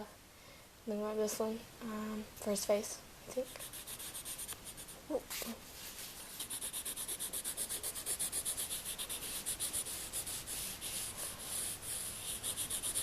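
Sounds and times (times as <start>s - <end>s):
marker scribbling on paper: 3.4s - 5.4s, 6.3s - 13.0s.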